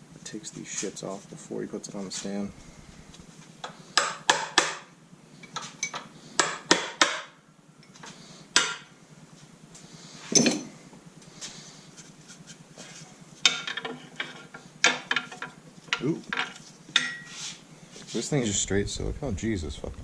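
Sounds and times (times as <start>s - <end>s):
metal tools and parts clanking: 10.3s - 10.8s.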